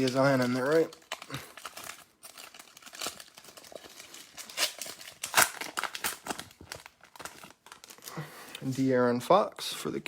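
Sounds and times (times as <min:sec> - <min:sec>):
trading cards snapping and rustling: 0:00.0 - 0:07.9.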